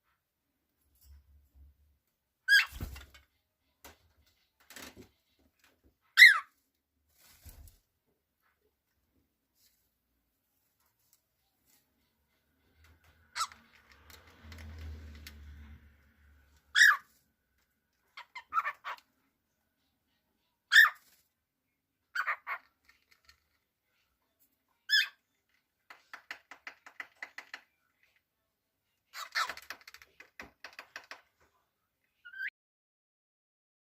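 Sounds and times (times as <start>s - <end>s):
cockatiel chirping: 2.5s - 2.8s, 6.2s - 6.5s, 13.3s - 13.6s, 16.7s - 17.1s, 18.2s - 19.0s, 20.7s - 21.1s, 22.1s - 22.6s, 24.9s - 25.2s
cockatiel chattering: 18.2s - 19.0s, 20.7s - 21.0s, 22.1s - 22.7s.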